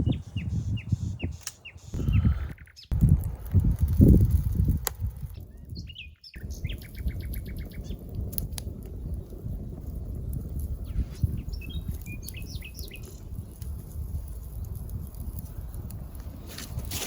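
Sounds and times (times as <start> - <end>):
songbirds chirping and trilling: 0.0 - 3.0, 5.1 - 13.9.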